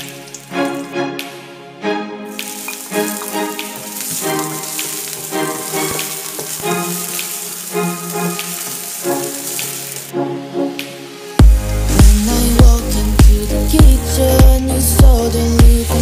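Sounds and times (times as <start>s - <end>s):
background music: 0.0s - 16.0s
onion and garlic sizzling in oil: 2.3s - 10.1s.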